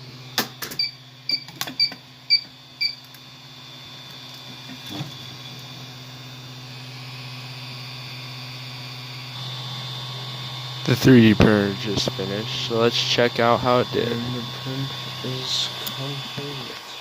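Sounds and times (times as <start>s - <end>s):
printer fans and motors humming: 0.0s - 17.0s
printer beeping: 0.7s - 3.0s.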